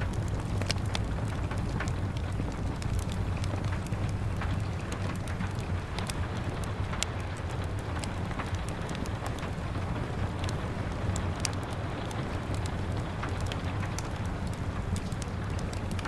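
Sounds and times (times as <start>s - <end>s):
rain pattering on window: 0.0s - 16.0s
wood fire crackling: 0.0s - 16.0s.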